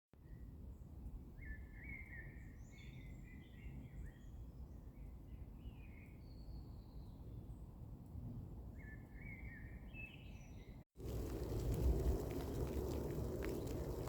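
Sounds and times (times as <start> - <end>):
faint rain: 11.0 - 14.0.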